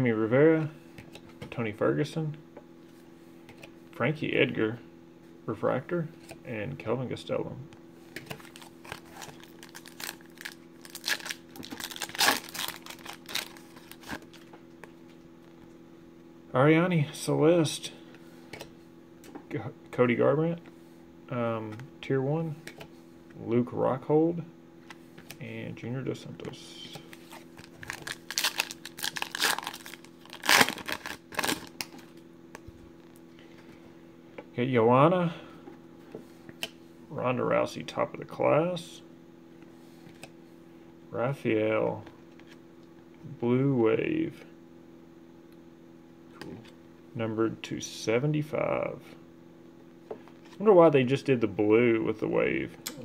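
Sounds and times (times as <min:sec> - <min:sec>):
faint hum: 0:00.0 - 0:53.0
foil wrapper tearing and crinkling: 0:08.4 - 0:14.4, 0:27.6 - 0:31.9.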